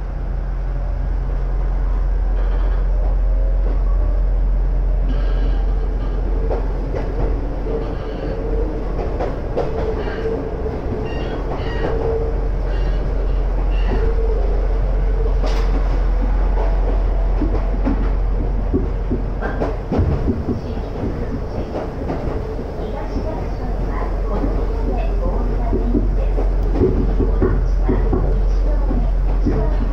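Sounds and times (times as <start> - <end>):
constant hum: 0.0 - 29.9
train running low rumble: 0.0 - 29.9
rail-joint knocks: 15.4 - 29.9
train wheel clicks: 15.4 - 29.9.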